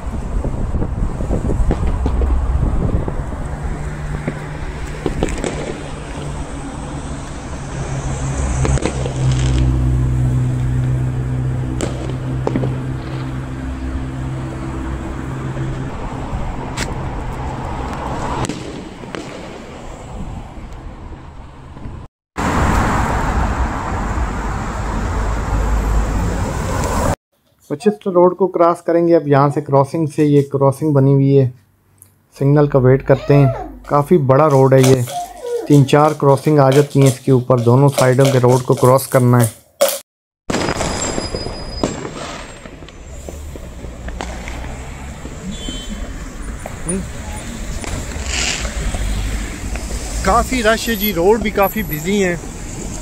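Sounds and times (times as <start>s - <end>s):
heavy road traffic: 0.0s - 27.2s, 31.6s - 53.0s
vehicle engine humming: 0.0s - 27.2s, 42.6s - 53.0s
firework bangs: 0.8s - 14.0s, 18.2s - 20.7s, 40.5s - 52.8s.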